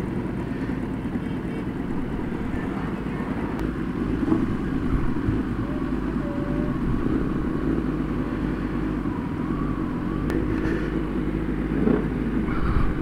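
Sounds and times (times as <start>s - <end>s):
motorcycle engines idling: 0.0s - 13.0s.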